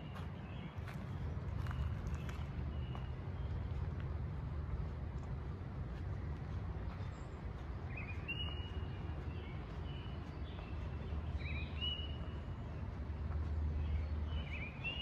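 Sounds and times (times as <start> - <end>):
low outdoor rumble: 0.0 - 15.0
songbird calling: 7.9 - 12.8, 13.7 - 15.0.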